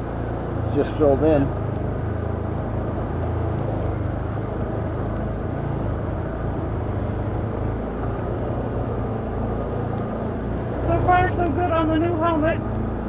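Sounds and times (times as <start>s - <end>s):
atv engine droning: 0.0s - 13.0s.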